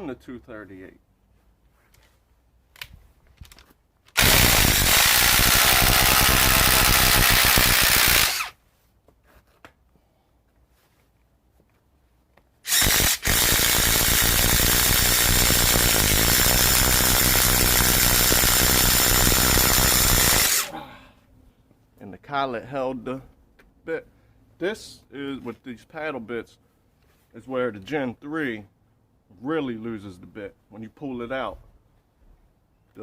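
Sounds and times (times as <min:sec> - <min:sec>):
impact driver boring into wood: 0:04.2 - 0:08.6, 0:12.7 - 0:20.7.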